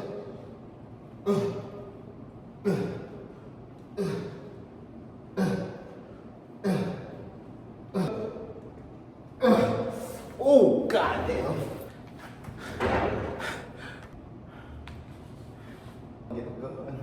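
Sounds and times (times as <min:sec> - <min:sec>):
man grunting with effort: 0:01.2 - 0:01.8, 0:09.4 - 0:10.0.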